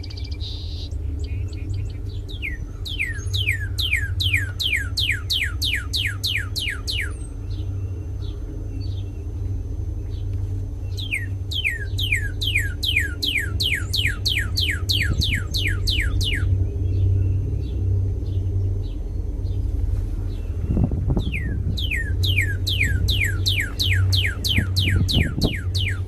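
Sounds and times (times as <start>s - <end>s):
bird singing clear whistles: 0.0s - 7.9s, 10.9s - 17.4s, 20.7s - 26.0s
steady low hum: 0.0s - 26.0s.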